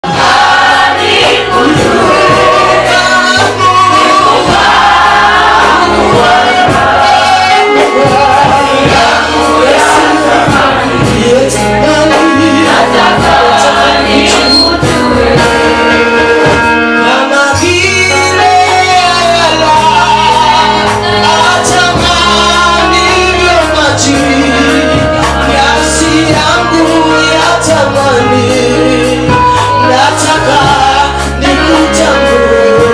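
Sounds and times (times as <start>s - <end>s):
band with bass and drums: 0.0s - 32.9s
choir singing gospel: 0.0s - 32.9s.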